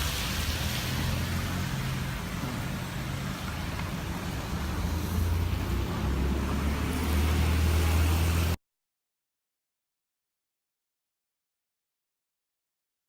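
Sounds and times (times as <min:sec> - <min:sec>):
car engine humming: 0:00.0 - 0:08.6
road noise hiss: 0:00.0 - 0:08.6.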